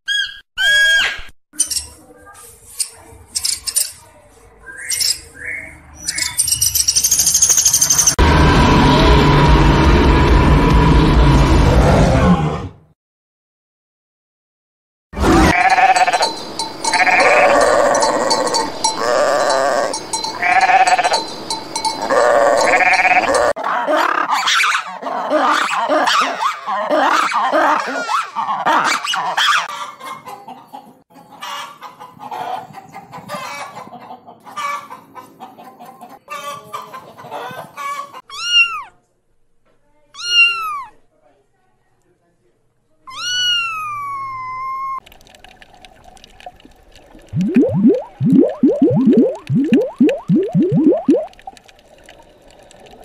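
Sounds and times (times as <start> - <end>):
lemur calls: 15.4 - 21.3
cat meowing: 38.3 - 38.9, 40.2 - 41.0, 43.1 - 45.0.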